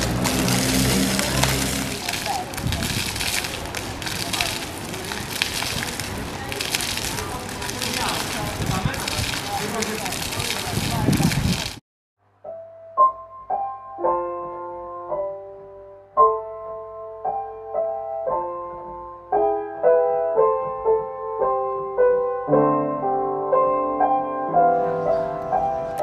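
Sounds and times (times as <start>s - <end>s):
piano music: 0.0s - 4.6s, 12.4s - 26.0s.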